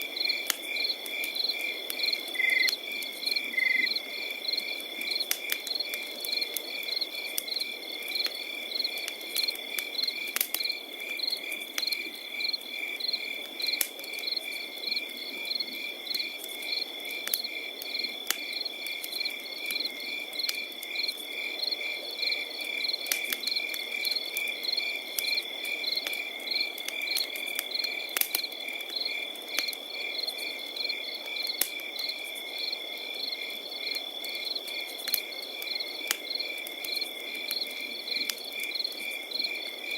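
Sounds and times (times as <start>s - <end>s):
campfire crackling and popping: 0.0s - 39.9s
crickets chirping: 0.1s - 39.9s.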